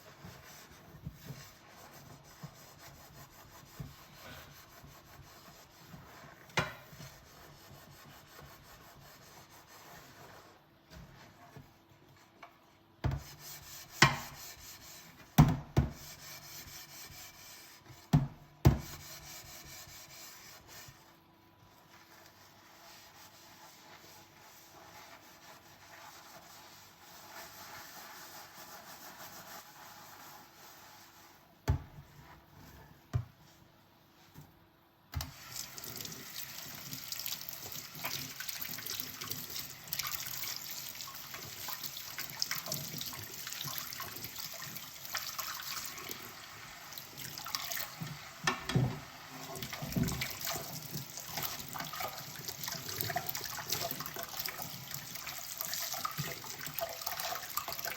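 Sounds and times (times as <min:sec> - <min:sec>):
soft scrubbing of dishes: 0:00.0 - 0:18.2, 0:18.8 - 0:34.5, 0:35.3 - 0:57.9
tap water running over dishes: 0:35.2 - 0:57.9.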